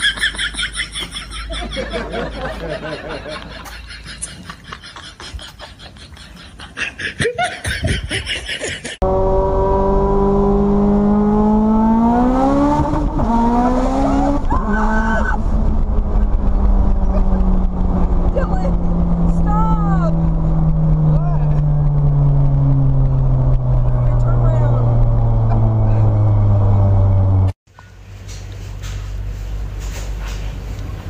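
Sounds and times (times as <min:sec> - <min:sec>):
car engine accelerating: 0:09.0 - 0:27.6.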